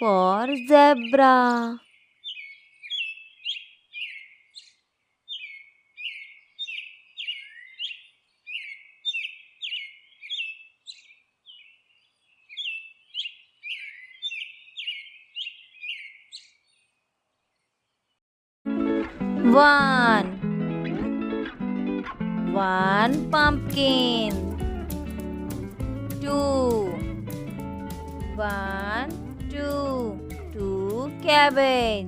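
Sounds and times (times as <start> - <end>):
small bird chirping: 0.0 - 18.2.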